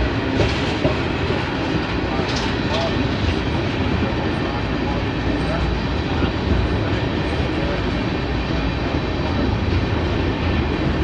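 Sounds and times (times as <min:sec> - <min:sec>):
steel wheels running on rails: 0:00.0 - 0:11.0.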